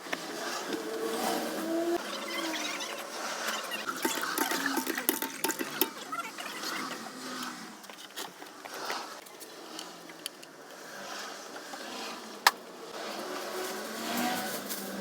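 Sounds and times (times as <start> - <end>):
tools scraping and clicking: 3.4 - 10.8.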